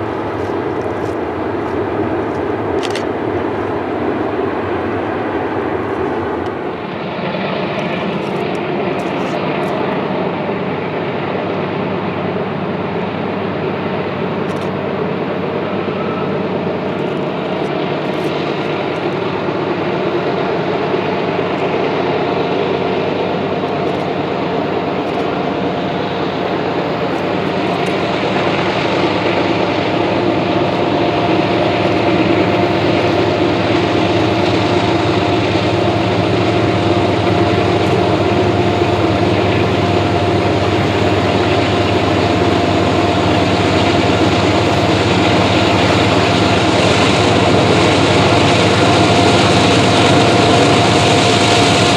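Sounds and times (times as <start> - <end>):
diesel locomotive engine drone: 0.0 - 51.9
high engine whine: 0.0 - 51.9.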